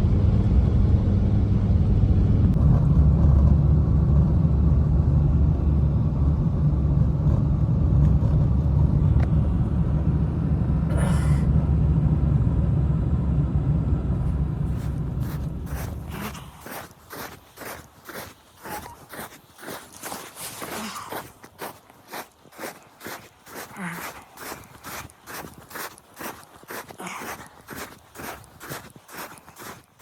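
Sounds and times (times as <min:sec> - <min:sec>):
loud low rumble: 0:00.0 - 0:17.8.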